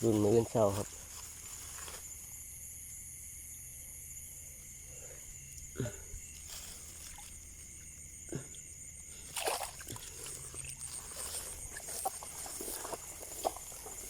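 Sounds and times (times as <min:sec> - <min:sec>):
insect chorus: 0:00.0 - 0:14.0
water sloshing and splashing: 0:06.4 - 0:08.0, 0:09.1 - 0:14.0.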